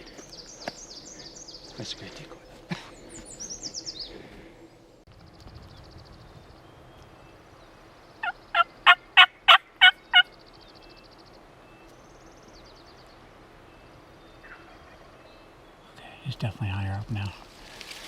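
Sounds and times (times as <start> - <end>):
loud turkey yelps: 8.2 - 10.3.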